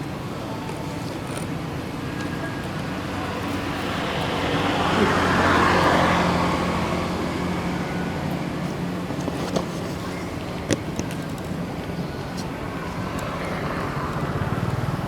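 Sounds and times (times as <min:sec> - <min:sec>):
vehicle passing by: 0:02.6 - 0:09.1, 0:13.1 - 0:15.0.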